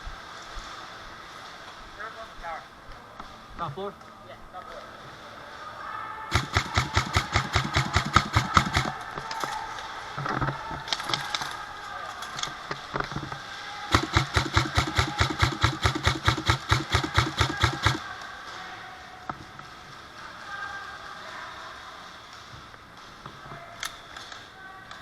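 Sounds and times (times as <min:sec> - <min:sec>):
airsoft gun firing rapidly: 0:06.3 - 0:09.6, 0:13.9 - 0:18.1.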